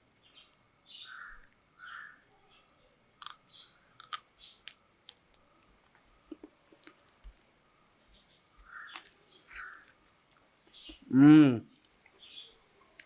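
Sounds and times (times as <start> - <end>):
person chewing and crunching food: 3.2 - 3.4, 4.0 - 7.6, 8.6 - 10.8.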